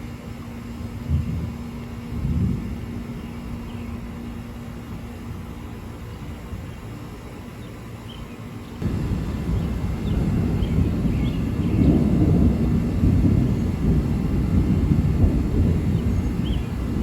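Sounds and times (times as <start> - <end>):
thunder rumbling: 1.1 - 5.5, 8.8 - 17.0.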